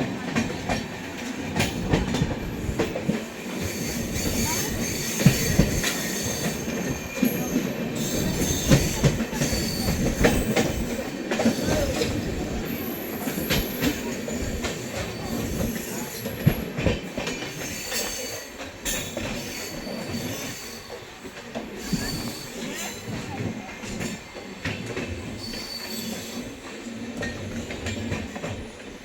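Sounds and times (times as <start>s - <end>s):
train carriage rattling over rails: 0.0s - 29.0s
high wheel squeals: 3.6s - 11.9s, 25.2s - 26.6s.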